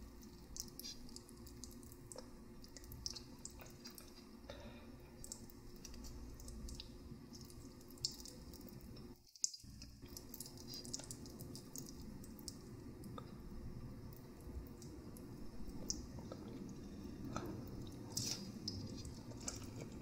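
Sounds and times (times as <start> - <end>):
wet mouth clicks and squishes: 0.5 - 4.2
chewing noodles: 15.7 - 20.0.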